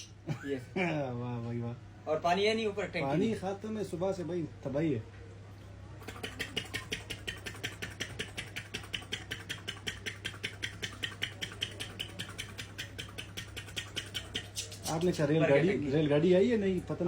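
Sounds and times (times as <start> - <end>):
steady low hum: 0.0 - 17.0
rapid mouth clicks: 6.0 - 15.2.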